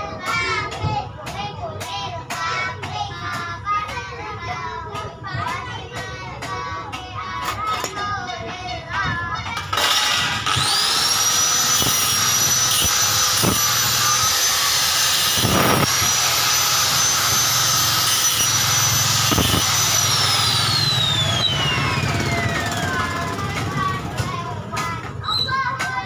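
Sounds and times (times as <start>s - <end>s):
electric motor whining: 9.6s - 23.8s.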